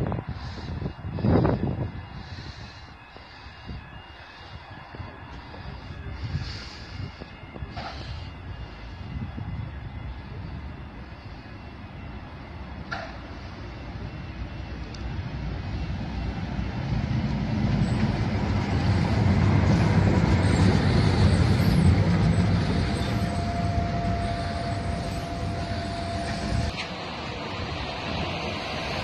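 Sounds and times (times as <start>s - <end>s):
steady whine: 0.0s - 29.0s
train wheels rumbling on rails: 0.0s - 29.0s
faint high squeals: 17.8s - 27.0s.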